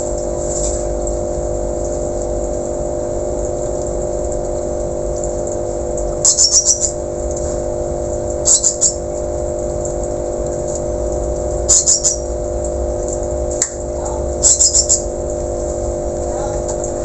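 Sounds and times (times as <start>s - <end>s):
steady low hum: 0.0s - 17.0s
thrush high-pitched calls: 6.2s - 7.0s, 8.4s - 9.0s, 11.7s - 12.3s, 14.4s - 15.1s.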